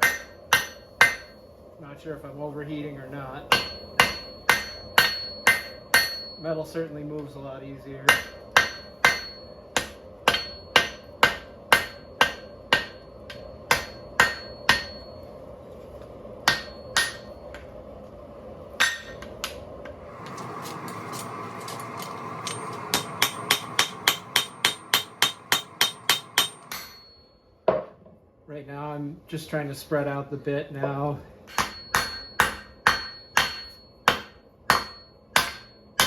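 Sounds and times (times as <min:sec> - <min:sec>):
hammer striking steel on anvil: 0:00.0 - 0:01.5, 0:03.5 - 0:06.6, 0:08.0 - 0:15.2, 0:16.4 - 0:17.7, 0:18.8 - 0:19.6, 0:20.7 - 0:27.9, 0:31.5 - 0:36.0
steady background hiss: 0:00.0 - 0:36.0.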